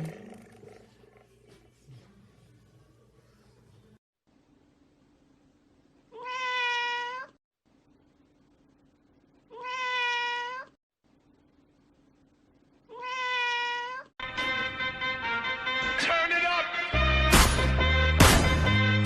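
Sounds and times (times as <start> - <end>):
cat meowing: 6.1 - 7.4, 9.5 - 10.8, 12.9 - 14.1
music: 14.2 - 19.0.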